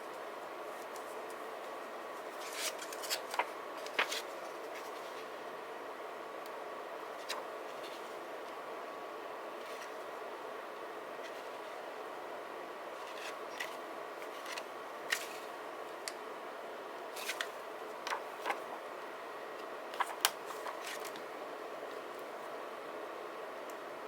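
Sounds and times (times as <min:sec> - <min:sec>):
steady low hiss: 0:00.0 - 0:24.0
paper clicking and rustling: 0:02.4 - 0:05.0, 0:18.1 - 0:18.7, 0:20.0 - 0:21.3.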